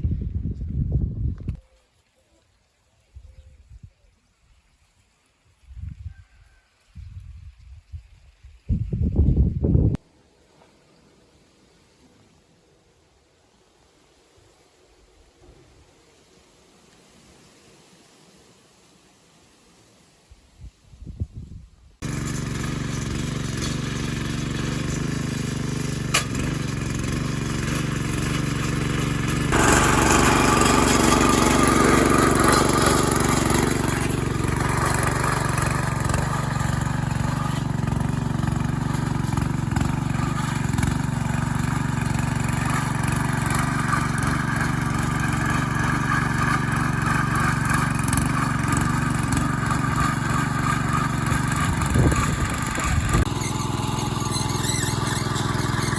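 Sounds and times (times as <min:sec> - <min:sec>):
engine running: 0:22.0 - 0:55.9.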